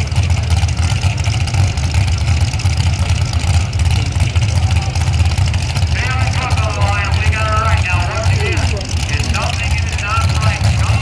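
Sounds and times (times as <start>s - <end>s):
truck engine running loud: 0.0s - 11.0s.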